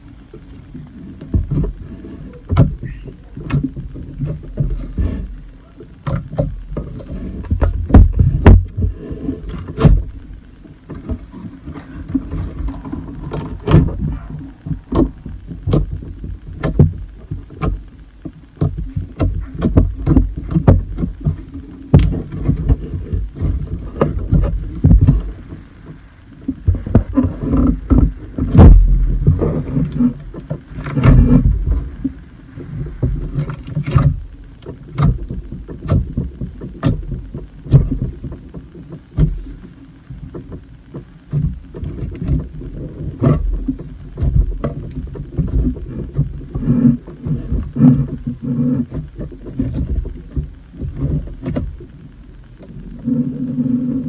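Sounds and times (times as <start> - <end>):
low thuds: 0.7 - 39.5.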